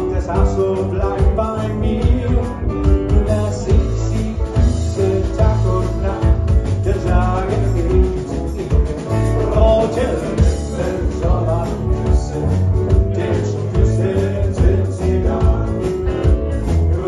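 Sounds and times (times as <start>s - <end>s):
live rock and roll band: 0.0s - 17.0s.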